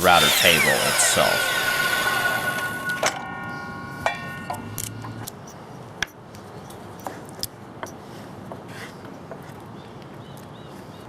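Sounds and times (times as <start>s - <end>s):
power saw whine: 0.0s - 5.3s.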